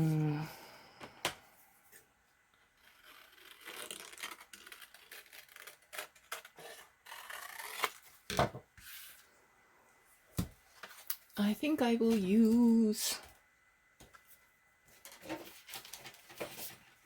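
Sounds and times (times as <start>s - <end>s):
paper rustling: 15.1s - 17.0s.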